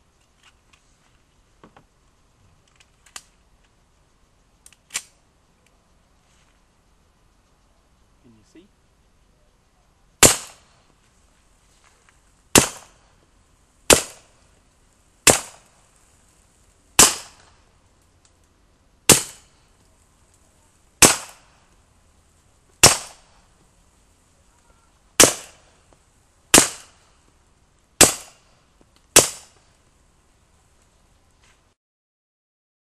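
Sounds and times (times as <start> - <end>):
suppressed pistol shots: 10.2 - 10.7, 12.5 - 13.0, 13.9 - 14.3, 15.2 - 15.7, 17.0 - 17.5, 19.1 - 19.5, 21.0 - 21.6, 22.8 - 23.3, 25.2 - 25.7, 26.5 - 27.0, 28.0 - 28.4, 29.2 - 29.6.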